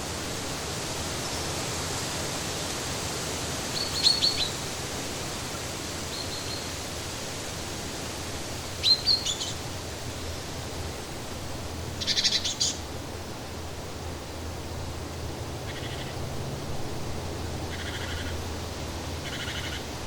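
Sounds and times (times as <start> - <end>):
bird chirping: 8.8 - 9.6, 12.0 - 12.8.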